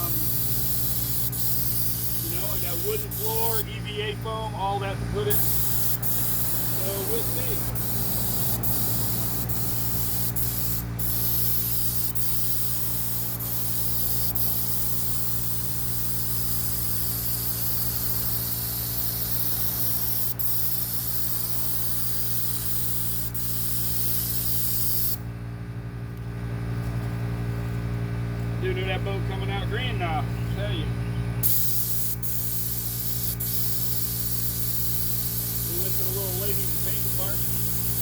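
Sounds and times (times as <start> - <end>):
paint spray gun hissing: 0.0 - 3.8, 5.3 - 25.2, 31.4 - 38.0
motor hum: 0.0 - 38.0.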